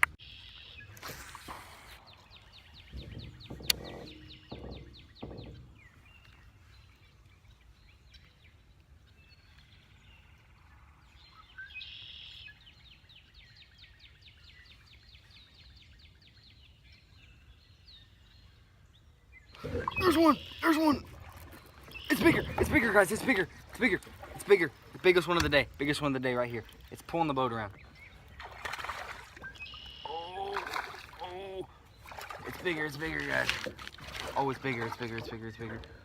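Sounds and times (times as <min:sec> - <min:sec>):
soft low thumps: 0:02.7 - 0:06.2
bird trilling: 0:19.6 - 0:21.2, 0:29.0 - 0:31.8.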